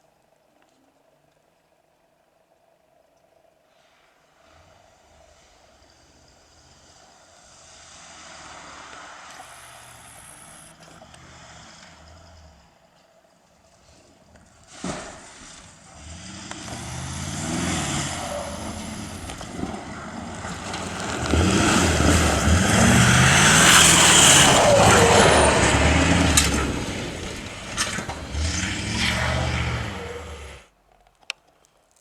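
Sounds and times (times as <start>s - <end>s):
racing car passing by: 4.4s - 30.7s
tyre noise: 14.7s - 32.0s.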